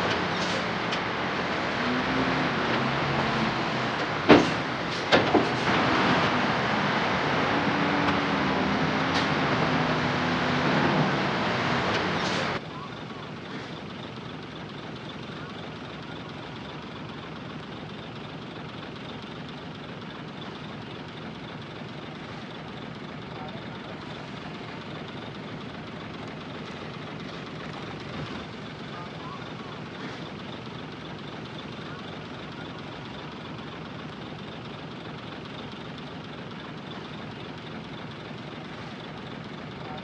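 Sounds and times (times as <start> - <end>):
diesel machinery engine drone: 0.0 - 40.0.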